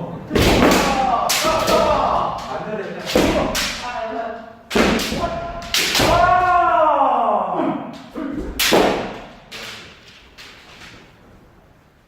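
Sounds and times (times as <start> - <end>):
bamboo swords striking: 0.3 - 4.0, 4.7 - 6.6, 8.1 - 10.7
person shouting: 0.8 - 2.5, 5.1 - 8.4.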